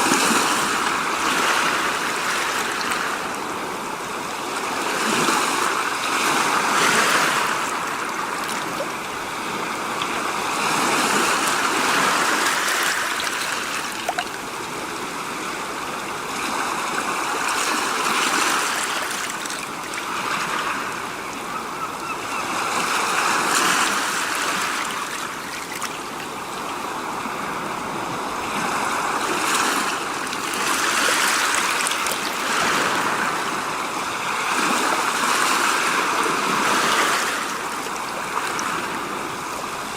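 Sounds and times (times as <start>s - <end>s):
rushing water-like noise: 0.0s - 39.9s.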